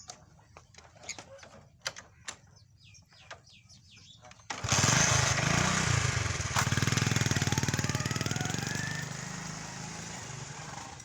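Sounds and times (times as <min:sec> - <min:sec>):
vehicle engine running: 0:04.6 - 0:11.0.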